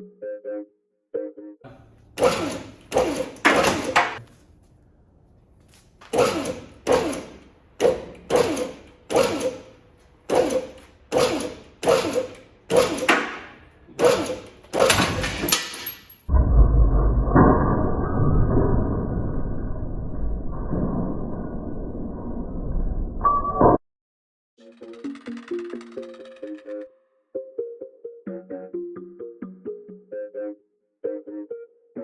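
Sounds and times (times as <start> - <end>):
low rumble: 16.3 - 23.7.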